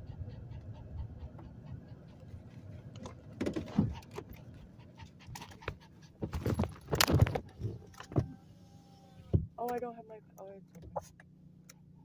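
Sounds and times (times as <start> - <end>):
dog panting: 0.0 - 6.4.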